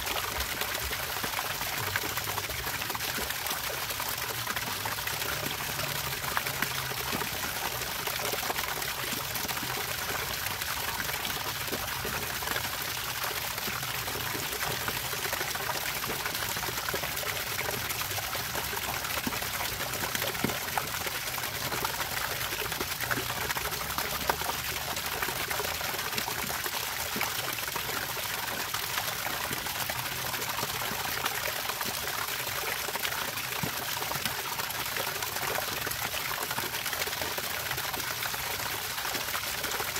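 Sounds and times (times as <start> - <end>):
water trickling and pouring: 0.0 - 39.9.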